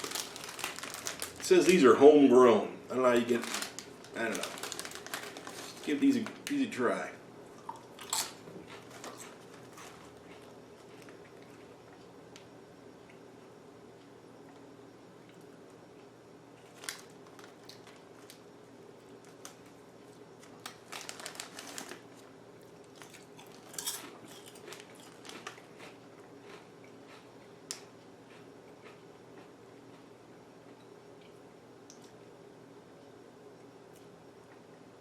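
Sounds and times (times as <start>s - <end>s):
crisp packet crinkling: 0.0s - 1.9s, 2.9s - 6.7s, 8.0s - 11.2s, 16.6s - 18.5s, 20.4s - 25.9s
crisps being crunched: 0.0s - 1.9s, 2.9s - 6.7s, 7.6s - 11.6s, 16.6s - 29.0s.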